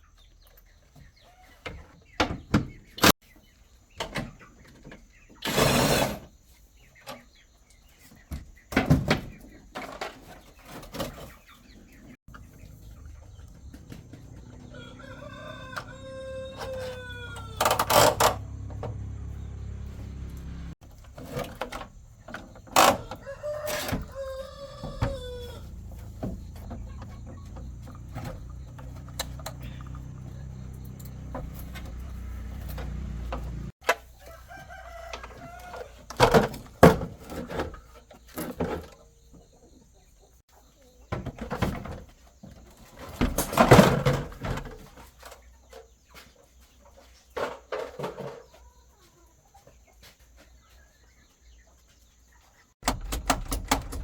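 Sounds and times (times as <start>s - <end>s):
rooster crowing: 14.2s - 18.6s, 22.8s - 27.2s, 29.5s - 36.0s.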